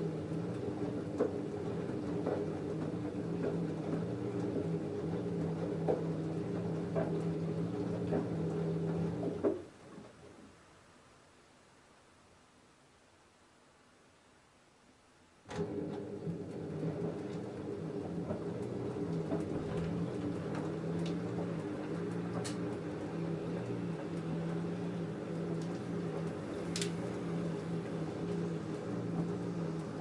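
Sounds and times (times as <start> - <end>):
washing machine motor humming: 0.0 - 10.2, 15.5 - 30.0
clicks from tumbling load: 18.2 - 23.0, 25.6 - 27.3.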